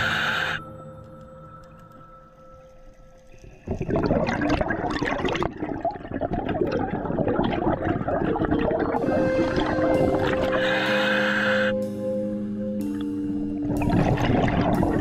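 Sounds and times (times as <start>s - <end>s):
underwater bubbles gurgling: 3.2s - 10.9s, 13.6s - 15.0s.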